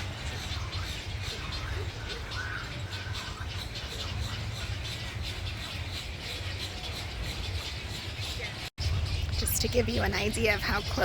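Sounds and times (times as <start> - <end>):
birds squawking and chattering: 0.0 - 11.0
steady low rumble: 8.8 - 11.0.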